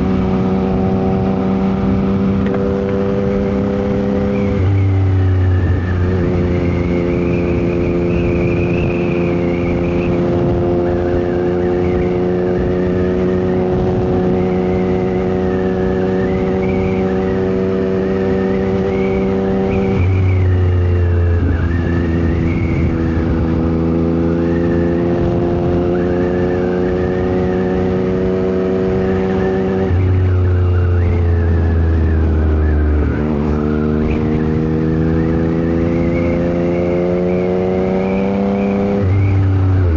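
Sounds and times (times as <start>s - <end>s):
motorcycle engine accelerating: 0.0s - 39.9s
wind noise: 0.0s - 39.9s
motorcycle gear changes: 0.2s - 7.0s.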